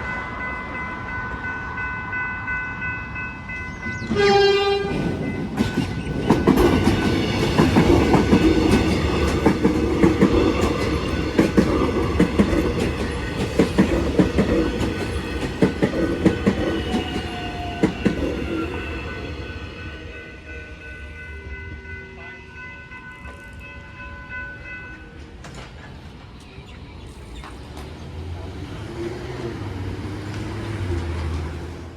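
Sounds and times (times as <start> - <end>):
train wheels clattering over rails: 4.9 - 19.0, 27.4 - 31.9.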